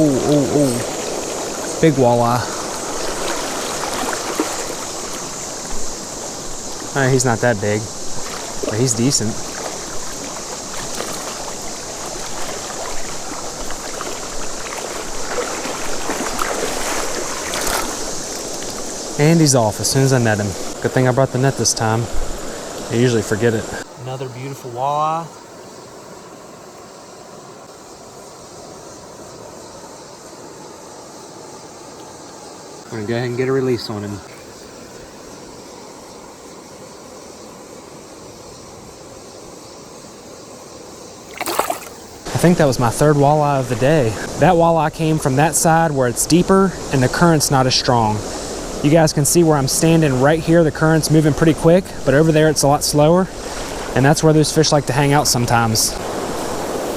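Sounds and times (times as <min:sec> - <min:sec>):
small water splashes: 0:00.0 - 0:07.0, 0:07.9 - 0:19.2, 0:41.2 - 0:43.1
creek water rushing over rocks: 0:00.0 - 0:27.7, 0:31.8 - 0:56.9.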